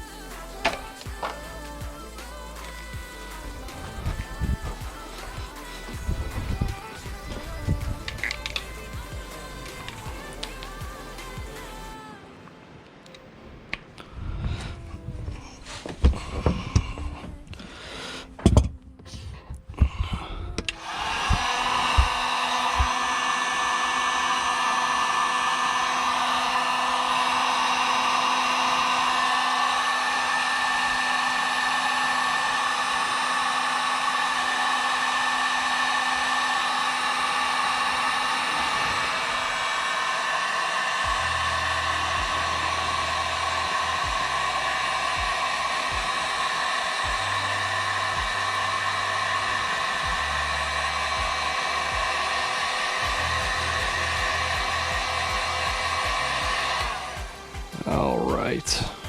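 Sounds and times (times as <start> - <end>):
background music with thumping bass: 0.0 - 12.0, 41.1 - 46.1, 47.0 - 48.6, 53.0 - 59.0
heat gun blowing: 0.0 - 12.0, 19.8 - 59.0.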